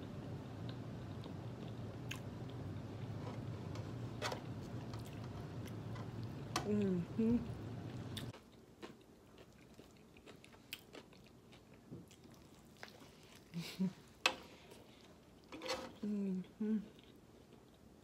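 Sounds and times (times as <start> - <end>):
person humming: 6.6 - 7.6, 16.0 - 17.0
person chewing a burger: 7.9 - 13.6.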